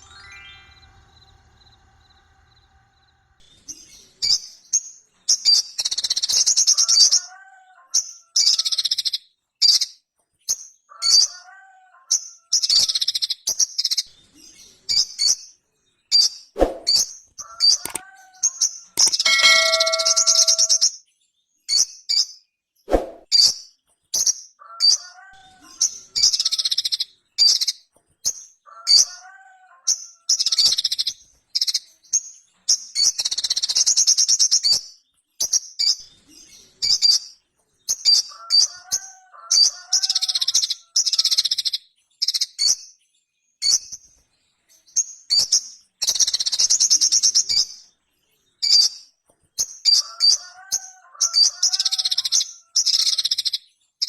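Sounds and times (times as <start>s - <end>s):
lower bird warbling: 19.0s - 20.8s.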